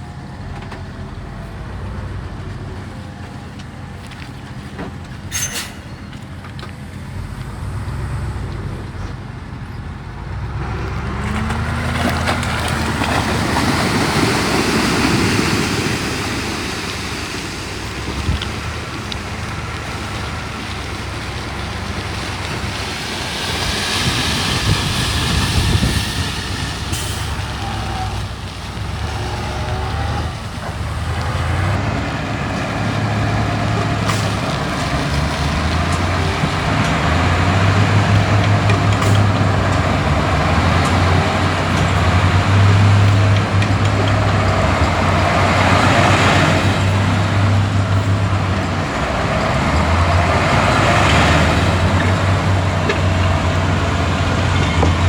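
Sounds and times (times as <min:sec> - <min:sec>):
heavy diesel engine under load: 0:00.0 - 0:55.0
metallic squeals and clanks: 0:05.2 - 0:06.7.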